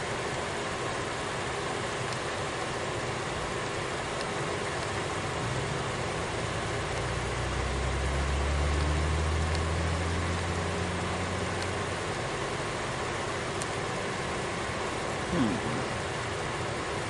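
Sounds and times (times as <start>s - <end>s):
engine rumble: 2.6s - 17.0s
low hum: 15.2s - 16.3s.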